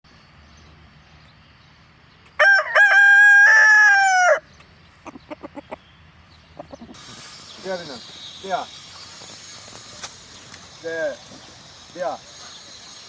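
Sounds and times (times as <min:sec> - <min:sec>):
rooster crowing: 0:02.4 - 0:04.5
chicken clucking: 0:04.9 - 0:07.4.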